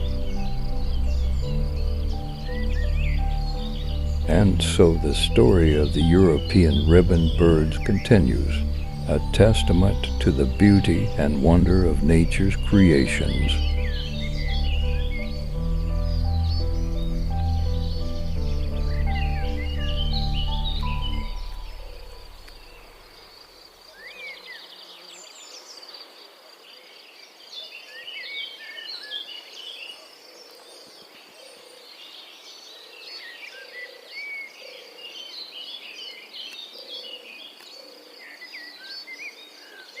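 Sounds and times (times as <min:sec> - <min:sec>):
high insect-like buzz: 0:00.0 - 0:04.4, 0:08.2 - 0:11.8, 0:12.6 - 0:26.4
background music: 0:00.0 - 0:23.3
small birds chirping: 0:00.0 - 0:40.0.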